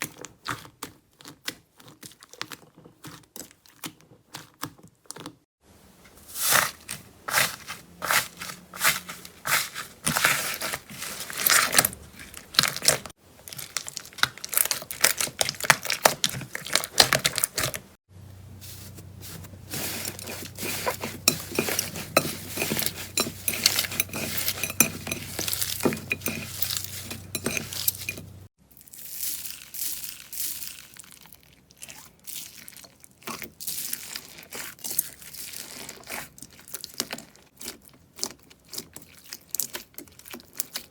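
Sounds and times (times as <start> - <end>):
slime crackling and popping: 11.4 - 17.7.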